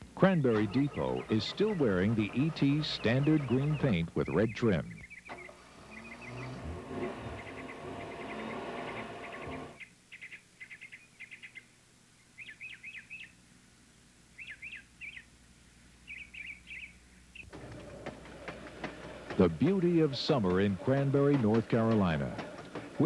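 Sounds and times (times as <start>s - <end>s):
songbird chirping: 0.2s - 13.5s, 14.3s - 23.0s
dull rumbling noise: 5.7s - 9.8s.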